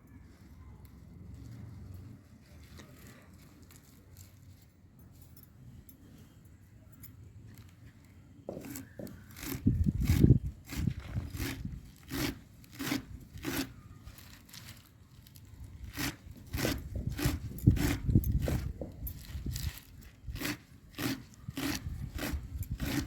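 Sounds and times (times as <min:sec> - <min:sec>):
crunchy cutting strokes: 0:08.5 - 0:23.0
heavy thumping strokes: 0:15.9 - 0:23.0.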